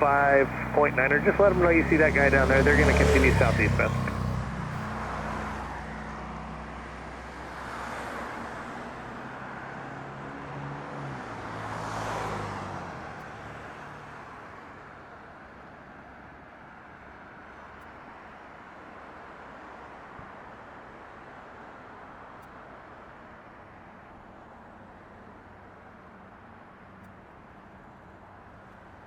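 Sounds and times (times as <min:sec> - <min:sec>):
low engine hum: 0:00.0 - 0:05.3
background traffic rumble: 0:00.0 - 0:10.4
vehicles passing with hiss: 0:00.0 - 0:10.8.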